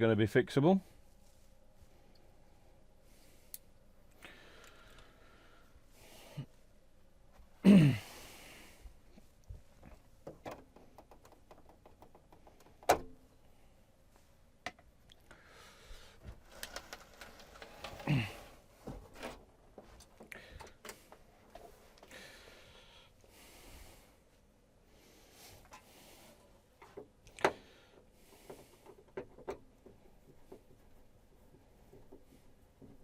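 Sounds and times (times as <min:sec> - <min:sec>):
light clicks and handling noise: 0:03.2 - 0:05.2, 0:09.1 - 0:13.5, 0:16.2 - 0:22.2
man sighing: 0:07.6 - 0:08.4, 0:18.0 - 0:18.6.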